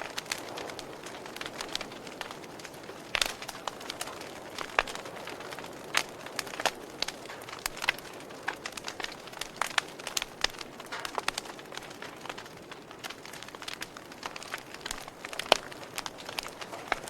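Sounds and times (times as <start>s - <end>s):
campfire crackling: 0.0s - 17.0s
wood pops and snaps: 5.9s - 17.0s.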